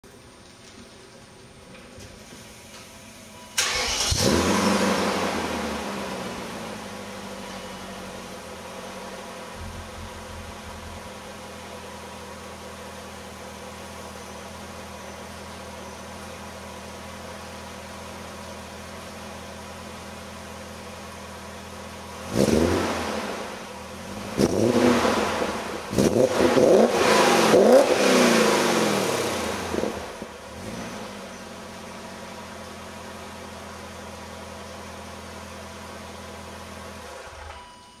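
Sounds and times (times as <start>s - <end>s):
car engine idling: 0.0s - 37.7s
car engine revving: 3.6s - 7.2s, 22.2s - 31.3s.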